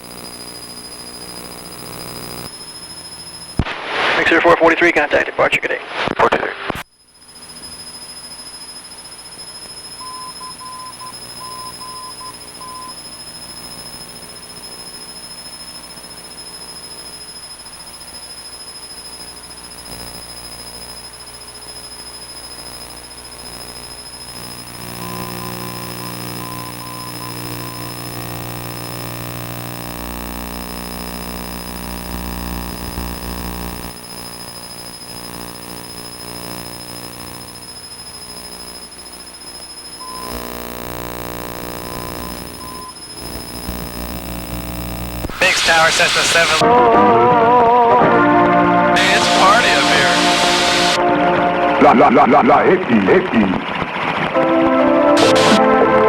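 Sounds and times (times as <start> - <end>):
high beeps in dot-dash pattern: 10.0 - 13.0, 40.0 - 40.3, 41.9 - 43.0.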